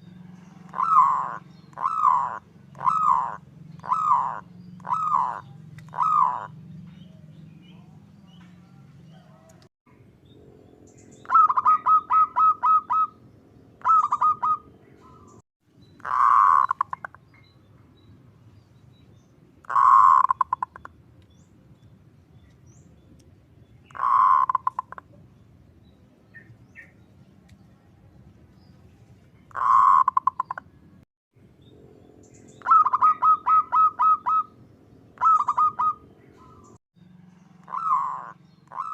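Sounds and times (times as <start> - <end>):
dove cooing: 0.0 - 8.0, 8.7 - 9.6, 11.2 - 13.2, 13.8 - 15.4, 16.0 - 17.1, 19.6 - 20.8, 23.9 - 25.0, 29.5 - 30.6, 32.6 - 34.6, 35.2 - 36.7, 37.4 - 38.9.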